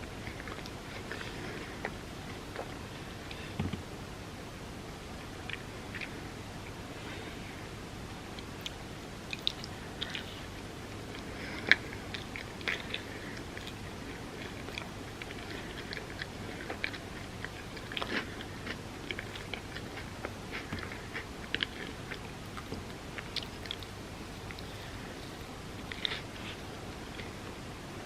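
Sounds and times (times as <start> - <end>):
wet chewing: 8.4 - 27.4.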